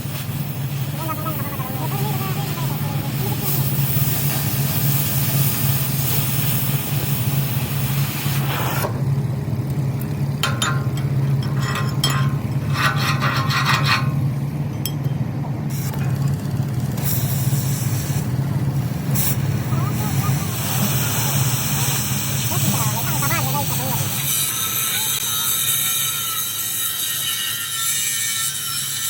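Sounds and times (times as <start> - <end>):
hiss: 0.0 - 8.9, 17.0 - 29.0
low engine-like drone: 0.3 - 24.2
scraping and rasping strokes: 10.4 - 14.4.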